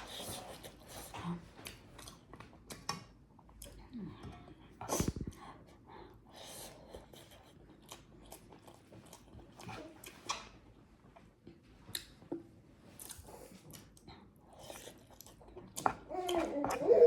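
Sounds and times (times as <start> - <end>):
person chewing food: 6.8 - 10.5, 11.4 - 16.8
small mouth clicks: 11.9 - 12.2.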